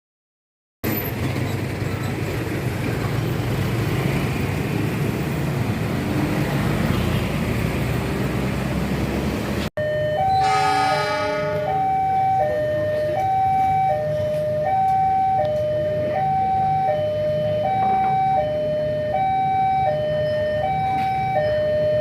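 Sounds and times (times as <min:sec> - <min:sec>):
road vehicles rumbling: 0:00.8 - 0:22.0
two-tone level crossing alarm: 0:09.8 - 0:22.0.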